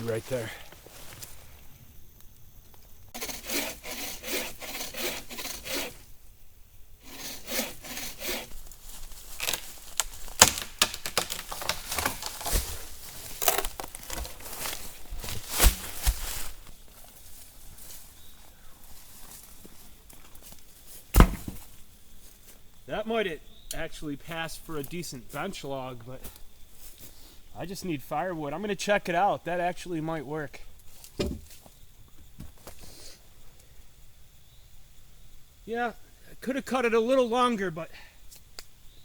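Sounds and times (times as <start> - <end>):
hand saw cutting log: 3.2 - 6.0, 7.0 - 8.6
wood cracking and knocking: 9.4 - 16.3, 21.1 - 21.7.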